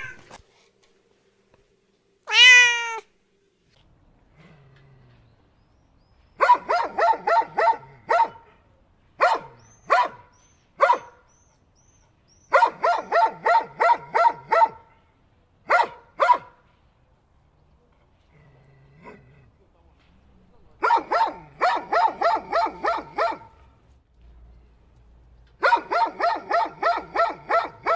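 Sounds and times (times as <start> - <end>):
dog barking: 6.4 - 11.3, 12.5 - 16.7, 20.8 - 23.7, 25.6 - 27.9.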